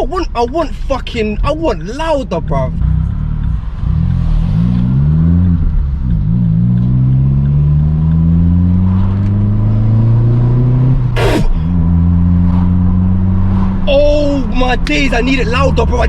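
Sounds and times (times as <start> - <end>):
car engine revving through exhaust: 2.8 - 13.8.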